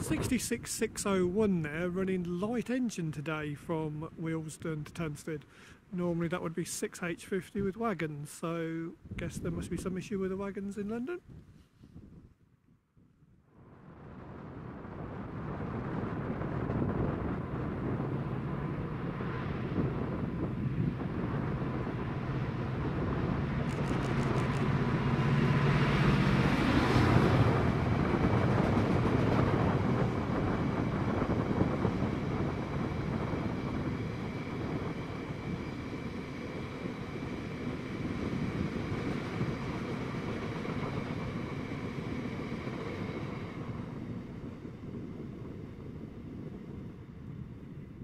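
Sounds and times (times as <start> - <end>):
diesel locomotive engine: 0.0 - 11.1, 13.7 - 48.0.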